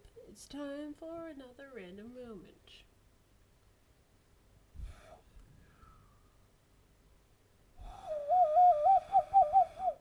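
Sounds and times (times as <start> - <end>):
cupped-hand whistle warbling: 8.1 - 10.0.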